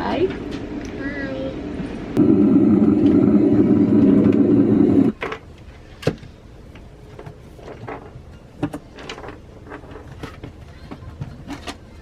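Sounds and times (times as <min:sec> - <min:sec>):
loud mechanical hum: 0:00.0 - 0:10.4.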